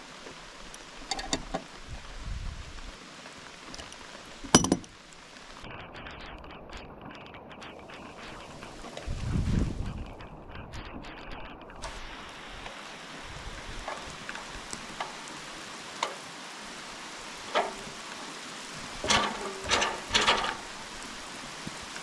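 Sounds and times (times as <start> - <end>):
rain pattering on surfaces: 0.0 - 22.0
knocks and clatters: 4.5 - 5.0, 17.4 - 18.2, 18.8 - 21.8.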